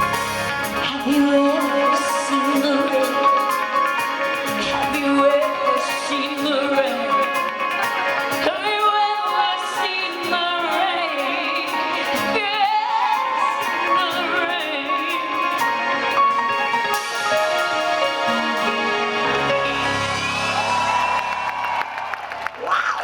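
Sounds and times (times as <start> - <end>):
woman singing with vibrato: 0.0 - 16.1
live rock band playing: 0.0 - 21.8.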